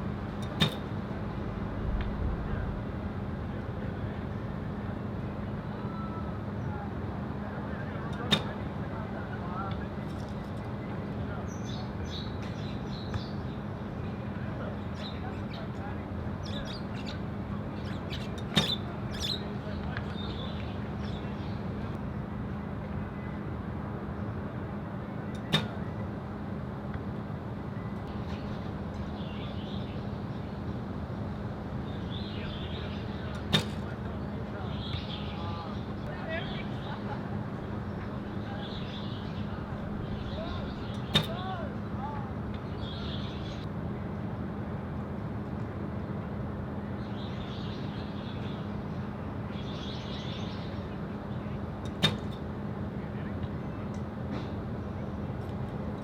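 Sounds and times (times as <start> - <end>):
low hum: 0.0 - 5.0
constant low hum: 0.0 - 56.0
wind noise: 1.2 - 4.0
arrow shot from a bow: 1.7 - 3.1.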